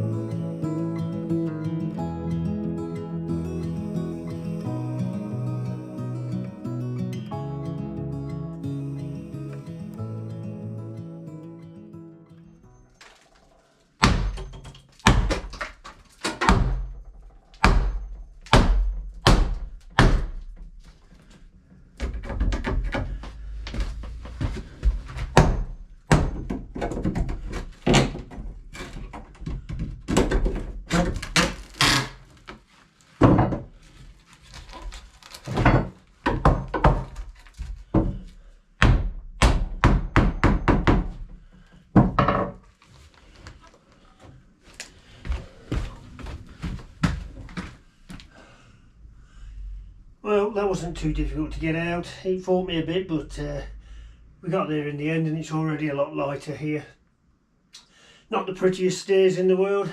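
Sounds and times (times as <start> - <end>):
heavy thuds on wood: 14.0 - 15.6, 16.4 - 17.0, 17.6 - 20.6, 22.0 - 28.4, 37.9 - 42.6.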